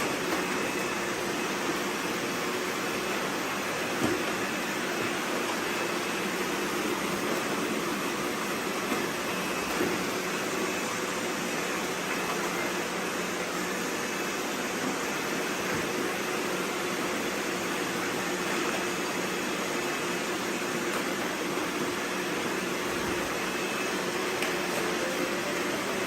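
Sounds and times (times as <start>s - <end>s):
robot vacuums whirring: 0.0s - 26.0s.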